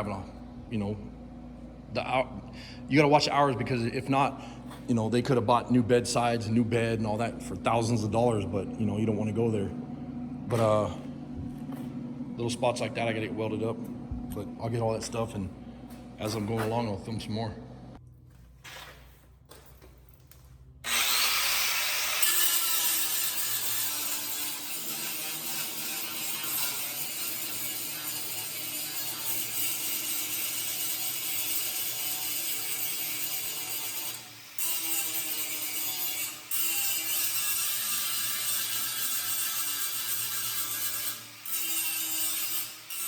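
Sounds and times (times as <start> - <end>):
welder arc crackling on metal: 20.2 - 43.0.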